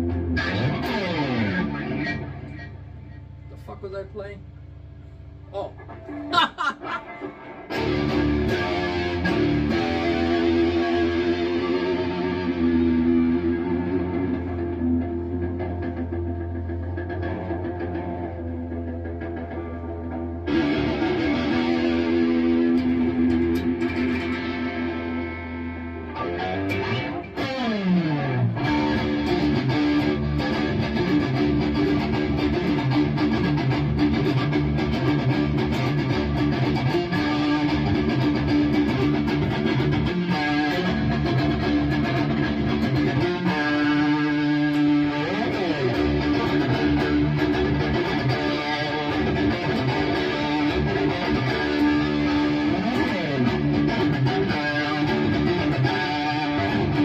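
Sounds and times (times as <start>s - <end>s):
distorted electric guitar: 0.0s - 57.0s.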